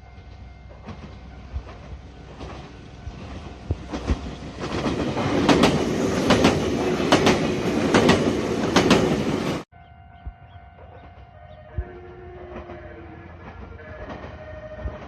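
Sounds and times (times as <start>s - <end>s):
train rumble: 0.0s - 15.0s
wheels clicking over rail joints: 0.3s - 9.6s.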